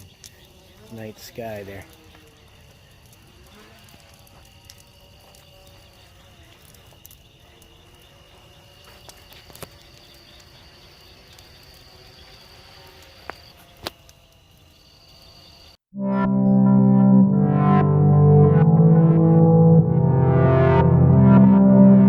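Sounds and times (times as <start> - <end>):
burning brush popping: 0.0 - 14.7
night insects trilling: 0.0 - 15.8.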